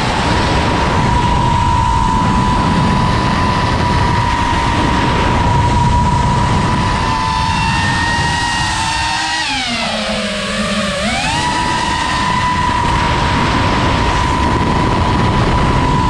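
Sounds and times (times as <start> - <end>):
drone motors whining: 0.0 - 16.0
wind rumble on microphone: 0.0 - 16.0.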